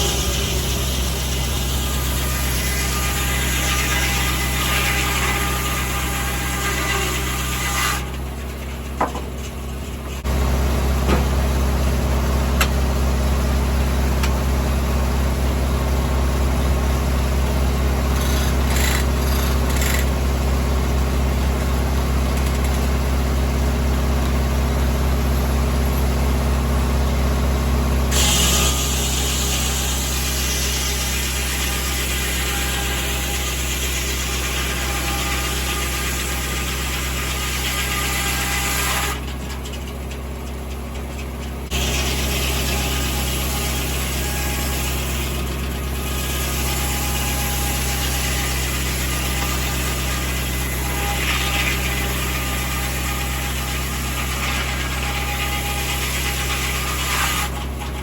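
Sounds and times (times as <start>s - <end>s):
tractor engine running: 0.0s - 2.5s, 8.0s - 28.2s, 39.2s - 42.2s.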